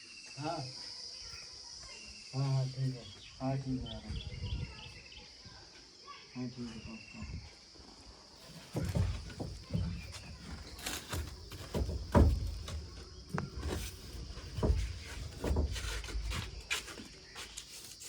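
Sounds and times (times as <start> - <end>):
thumps and knocks: 8.5 - 17.1.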